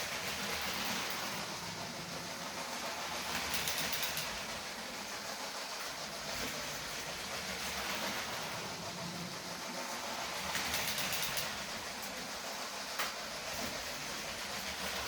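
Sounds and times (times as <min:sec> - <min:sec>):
toy train motor whir: 0:00.0 - 0:15.0.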